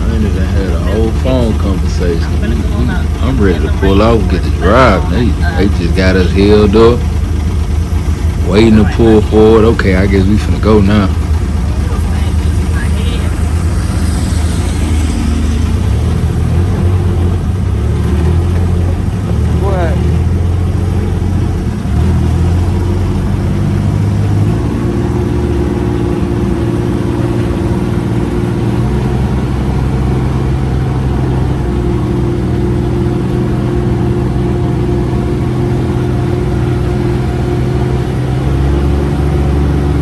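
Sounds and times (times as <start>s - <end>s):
utility vehicle engine under throttle: 0.0s - 40.0s.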